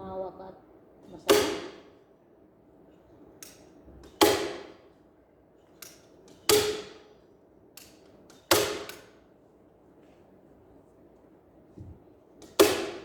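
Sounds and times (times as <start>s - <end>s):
tool striking wooden frame: 4.0s - 4.8s, 6.3s - 7.1s, 8.3s - 9.2s, 11.8s - 13.0s.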